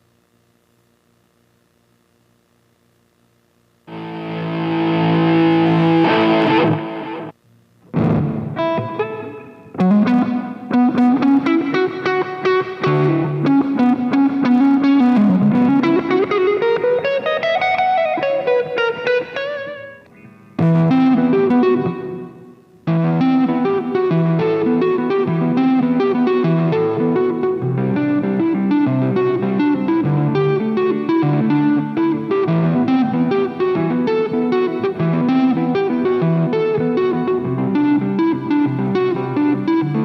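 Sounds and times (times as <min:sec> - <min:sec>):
distorted electric guitar: 0:03.8 - 0:40.0.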